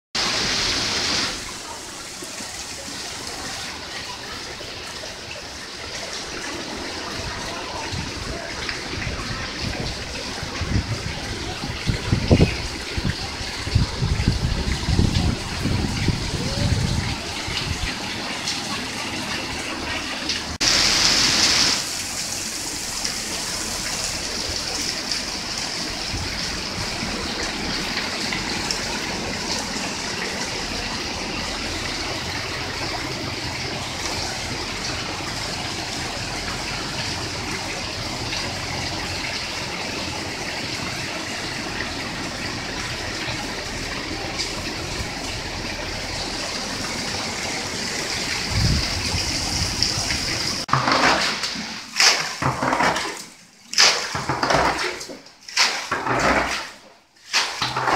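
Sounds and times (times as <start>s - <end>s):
running floodwater: 0.1s - 57.9s
heavy rain: 0.2s - 53.0s
sudden loud hiss: 20.6s - 22.0s.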